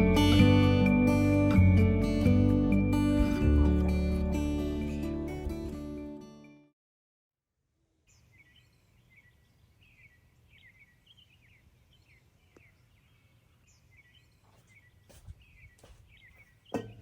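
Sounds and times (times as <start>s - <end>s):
small birds chirping: 8.1s - 17.0s
soft knocks: 16.7s - 17.0s.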